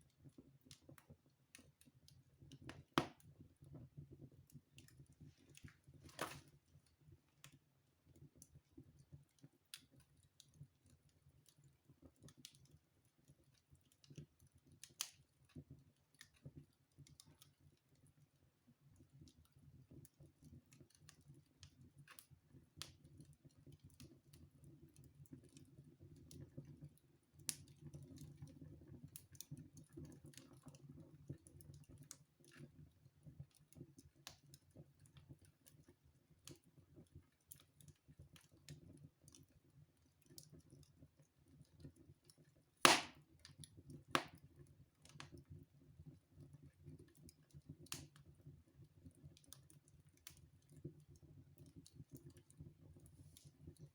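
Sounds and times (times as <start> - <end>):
fire crackling in fireplace: 0.0 - 53.9
loud sharp pop: 42.9 - 43.2.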